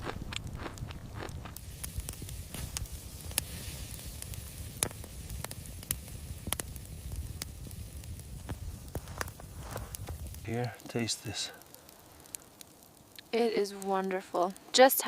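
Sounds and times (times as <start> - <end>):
low steady rumble: 0.0 - 10.7
fire crackling and popping: 0.0 - 15.0.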